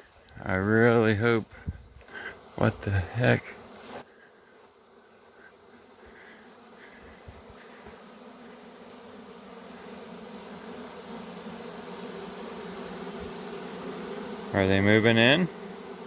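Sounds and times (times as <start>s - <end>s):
bee swarm humming: 0.0s - 16.0s.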